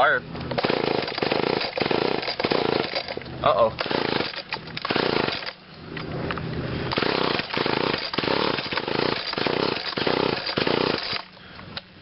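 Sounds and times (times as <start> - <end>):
string trimmer recoil starter pulls: 0.4 - 5.6, 6.9 - 11.3.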